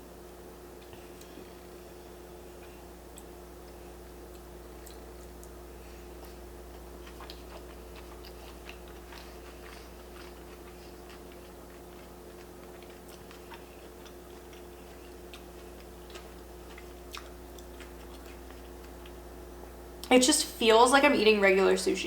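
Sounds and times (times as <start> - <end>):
person chewing: 0.7 - 20.1.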